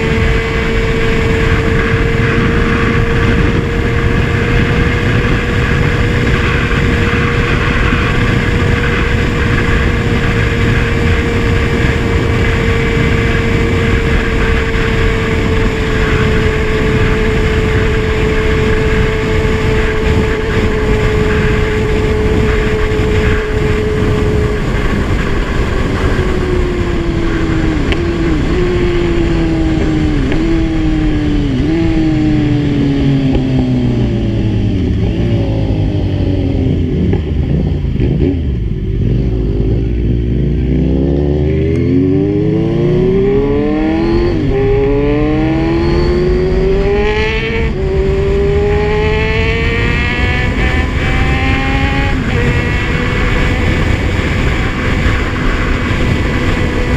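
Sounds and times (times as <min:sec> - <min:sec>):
motorcycle engine shifting gears: 0:00.0 - 0:56.9
wind rumble: 0:00.0 - 0:56.9.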